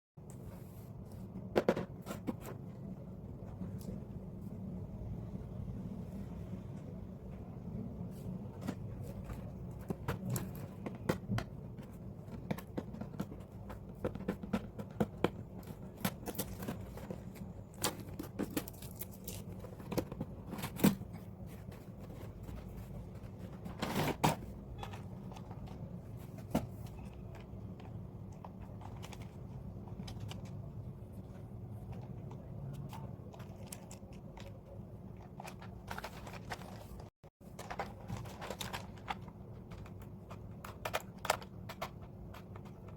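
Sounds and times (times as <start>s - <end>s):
plastic and cardboard packaging crinkling: 8.6s - 27.6s, 31.9s - 42.9s.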